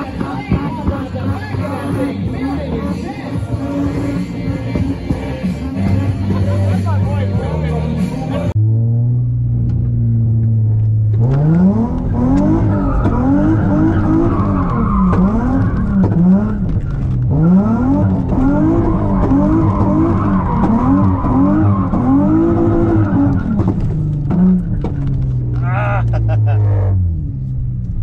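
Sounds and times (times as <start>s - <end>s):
car engine revving hard: 0.0s - 7.2s, 11.1s - 25.2s
tyres skidding and squealing: 0.0s - 8.6s, 10.8s - 27.7s.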